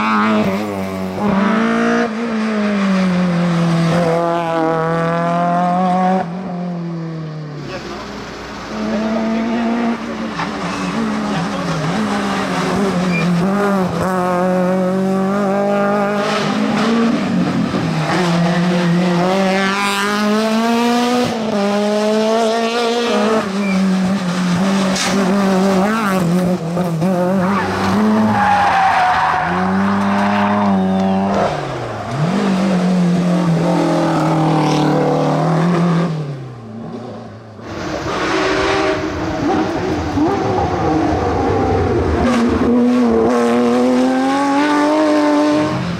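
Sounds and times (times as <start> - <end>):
rally car engines revving: 0.0 - 45.9
tyre squeal: 13.0 - 13.4, 23.6 - 23.9.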